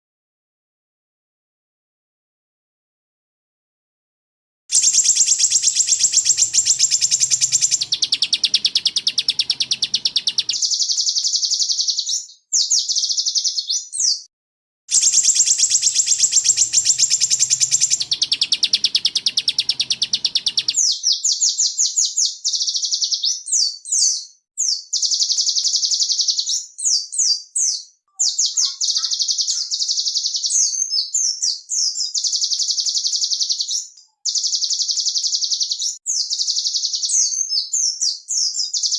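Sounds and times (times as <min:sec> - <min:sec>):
songbirds trilling and chattering: 0:04.7 - 0:10.9, 0:14.9 - 0:20.8, 0:28.2 - 0:30.8.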